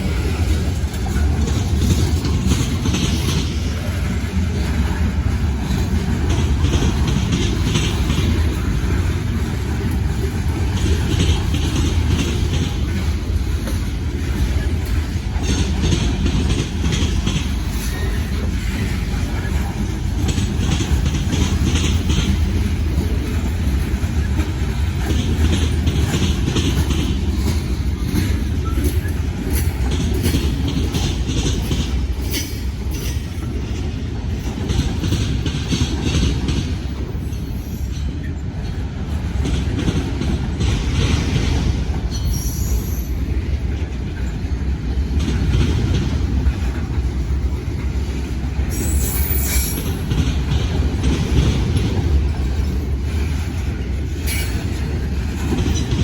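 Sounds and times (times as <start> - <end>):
freight train rumbling past: 0.0 - 56.0
wheels clicking over rail joints: 0.0 - 56.0
high wheel squeals: 42.1 - 43.2, 48.7 - 50.0.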